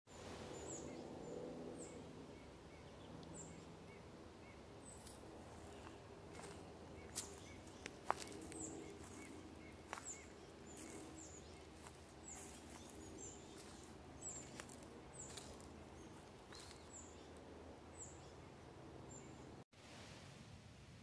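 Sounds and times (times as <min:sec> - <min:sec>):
footsteps on leaf litter: 0:05.0 - 0:17.0.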